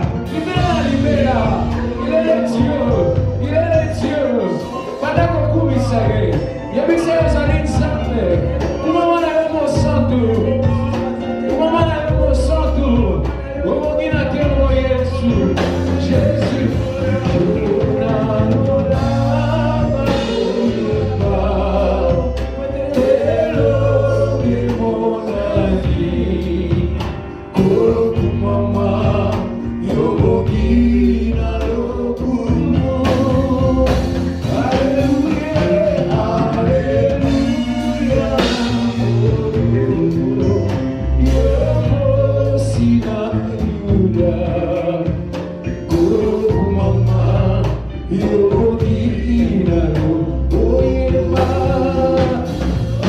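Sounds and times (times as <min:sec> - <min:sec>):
drums and bass beat: 0:00.0 - 0:53.0
gospel band playing: 0:00.0 - 0:53.0
singers: 0:00.0 - 0:53.0.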